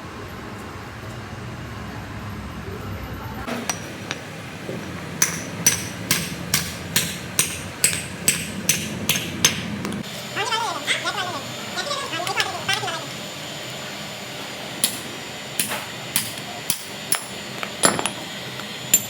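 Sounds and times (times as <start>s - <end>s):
hammer striking steel: 3.5s - 4.4s, 5.1s - 10.0s, 14.8s - 18.2s.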